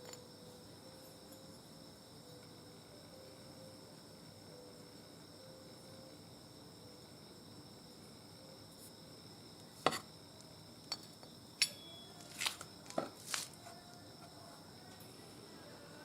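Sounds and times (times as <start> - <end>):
faint high-pitched hum: 0.0 - 16.0
metal tools clinking: 10.9 - 13.0.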